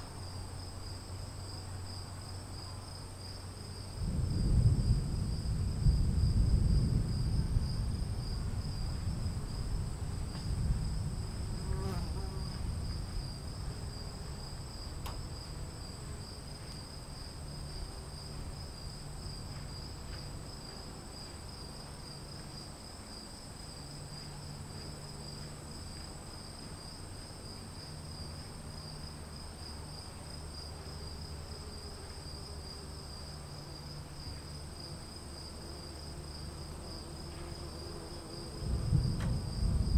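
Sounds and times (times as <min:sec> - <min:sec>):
crickets trilling: 0:00.0 - 0:39.9
thunder rumbling: 0:04.0 - 0:13.6, 0:38.5 - 0:39.9.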